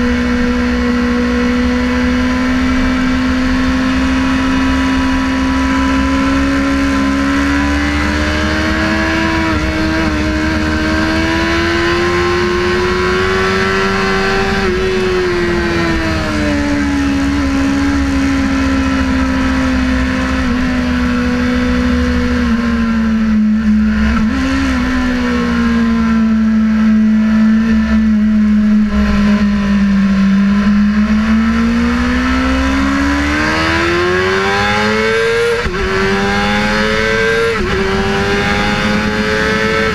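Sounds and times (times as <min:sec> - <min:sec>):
motorcycle engine running hard: 0:00.0 - 0:39.9.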